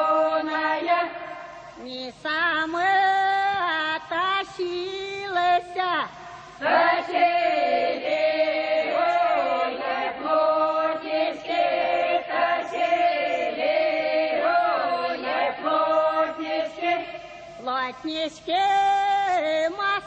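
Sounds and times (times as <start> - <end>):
choir singing unaccompanied: 0.0 - 1.9, 6.6 - 20.0.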